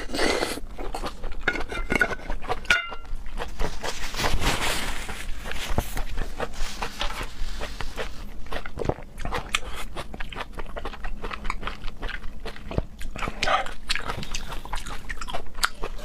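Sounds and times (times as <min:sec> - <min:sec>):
wet chewing and lip smacks: 0:05.4 - 0:16.0.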